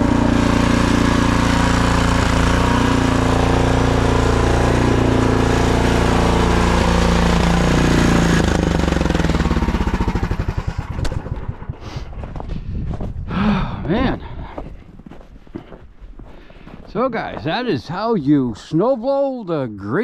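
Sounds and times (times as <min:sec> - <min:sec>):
snowblower engine running: 0:00.0 - 0:12.6.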